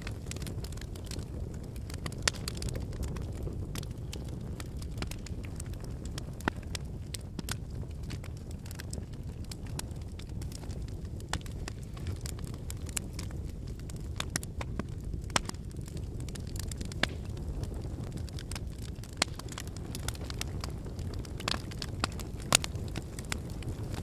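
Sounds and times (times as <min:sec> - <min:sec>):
burning logs crackling and popping: 0:00.0 - 0:24.0
low rumble of flames: 0:00.0 - 0:24.0.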